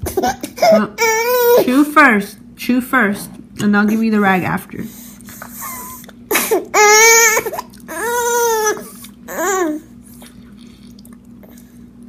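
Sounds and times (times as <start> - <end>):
baby crying: 0.3 - 1.8, 5.7 - 9.9.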